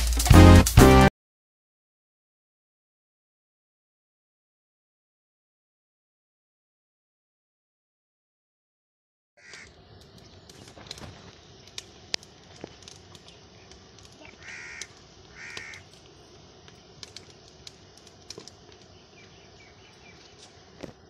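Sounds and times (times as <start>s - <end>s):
bird short calls: 9.4s - 9.8s, 14.2s - 15.9s
sharp clicks: 9.5s - 18.9s.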